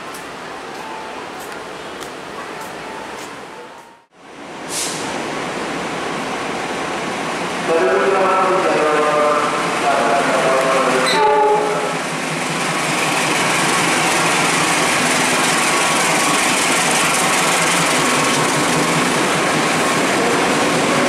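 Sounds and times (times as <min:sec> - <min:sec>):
diesel locomotive engines: 0:00.0 - 0:21.0
wagons rolling on rails: 0:12.0 - 0:21.0.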